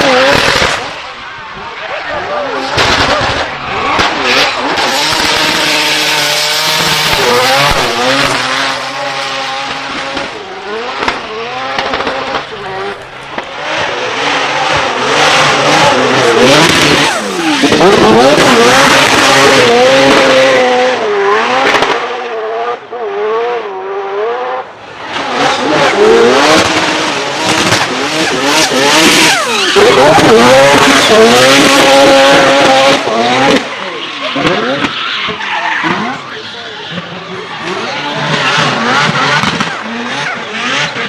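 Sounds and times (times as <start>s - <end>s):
car engine revving: 0.0s - 41.0s
tyres squealing: 28.2s - 32.5s, 33.1s - 38.8s.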